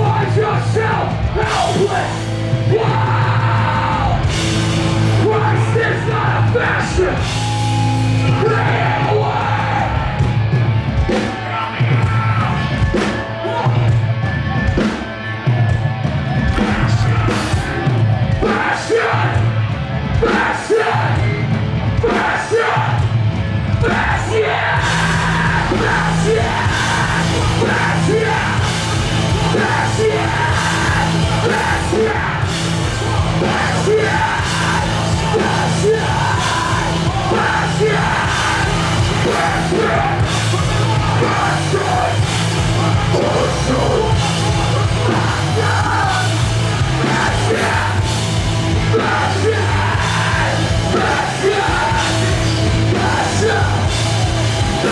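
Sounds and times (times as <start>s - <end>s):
screamed vocals: 0.0s - 4.4s, 5.1s - 10.2s, 16.6s - 19.4s, 22.0s - 23.0s, 23.8s - 54.9s
heavy guitars: 0.0s - 54.9s
pounding drums: 4.1s - 54.9s.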